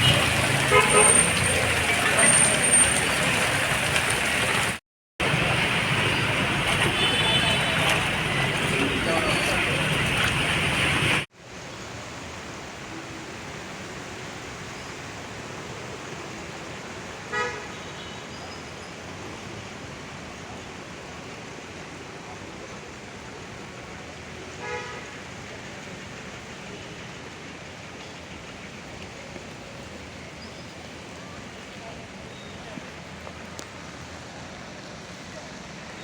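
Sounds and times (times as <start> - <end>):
vehicle horn toots: 0.0 - 1.3, 6.8 - 8.0
street and rain hiss: 0.0 - 36.0.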